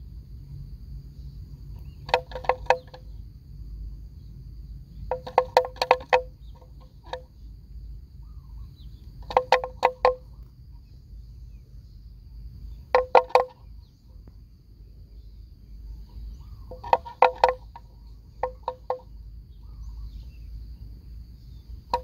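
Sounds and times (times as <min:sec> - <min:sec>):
faint high insect drone: 0:00.0 - 0:22.0
bird calling sharp notes: 0:16.1 - 0:20.5.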